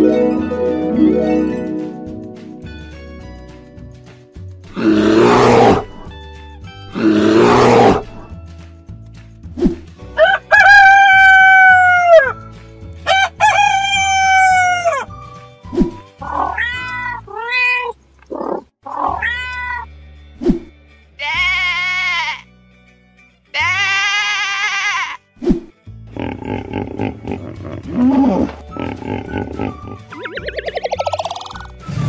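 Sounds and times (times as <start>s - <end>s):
background music: 0.0s - 18.2s, 18.8s - 32.0s
rooster crowing: 10.2s - 12.4s, 13.0s - 15.1s
cat meowing: 16.2s - 18.0s, 18.9s - 19.9s
sheep bleating: 21.2s - 22.5s, 23.5s - 25.2s.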